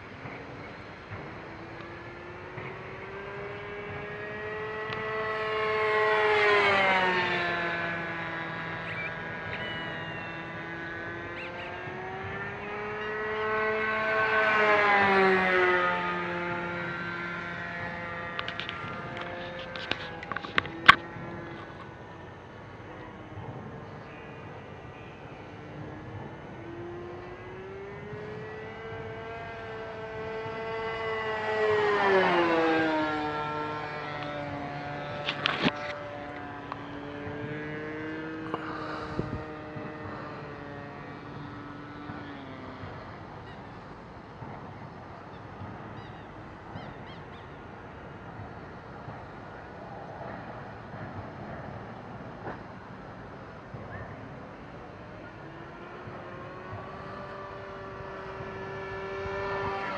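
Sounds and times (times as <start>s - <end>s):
model airplane engine buzz: 0.0s - 22.2s, 25.0s - 45.3s, 55.2s - 59.9s.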